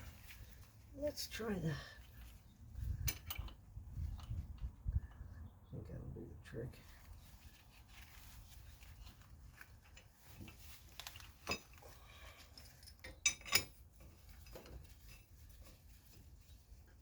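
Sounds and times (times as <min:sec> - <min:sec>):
metal tools clinking: 0:02.1 - 0:04.6, 0:09.8 - 0:15.6.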